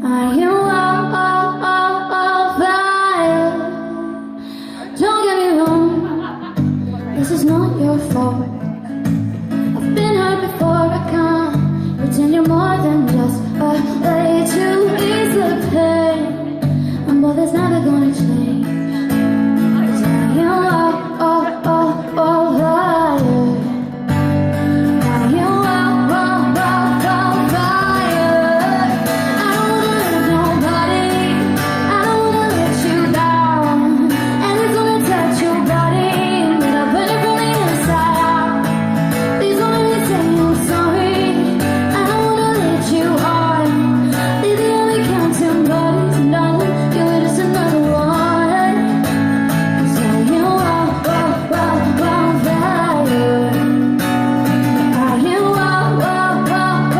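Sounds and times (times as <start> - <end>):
acoustic guitar: 0.0 - 56.9
woman singing: 0.0 - 56.9.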